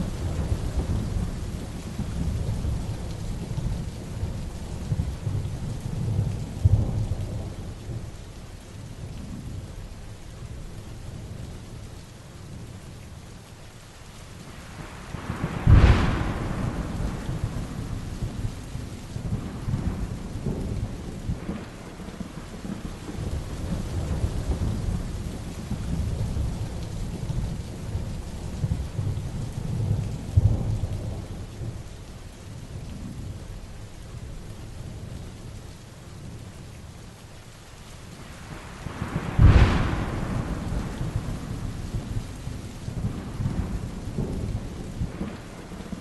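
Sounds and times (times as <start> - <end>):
heavy rain: 0.0 - 46.0
thunder: 15.1 - 31.9, 38.4 - 46.0.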